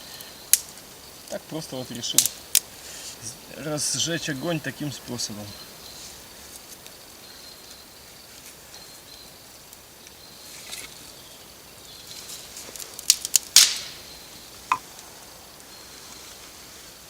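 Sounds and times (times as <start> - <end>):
faint insect buzz: 0.0 - 17.0.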